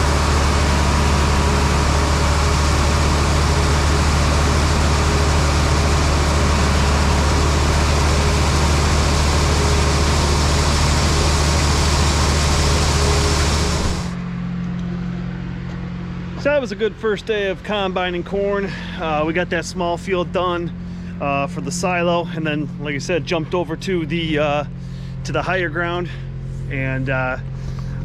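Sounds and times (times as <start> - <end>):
loud even rushing noise: 0.0 - 14.2
diesel engine running steadily: 0.0 - 28.0.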